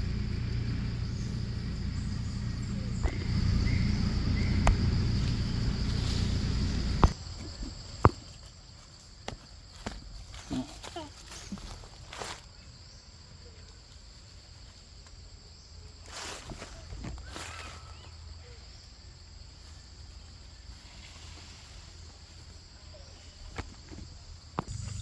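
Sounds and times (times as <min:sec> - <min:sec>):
low outdoor rumble: 0:00.0 - 0:07.8, 0:24.6 - 0:25.0
rustling or scraping: 0:00.0 - 0:07.8
insects buzzing: 0:00.0 - 0:25.0.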